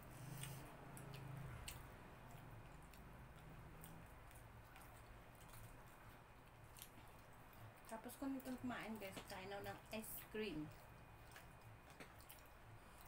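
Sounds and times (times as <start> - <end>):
low steady hum: 0.0 - 13.0
person chewing food: 0.0 - 13.0.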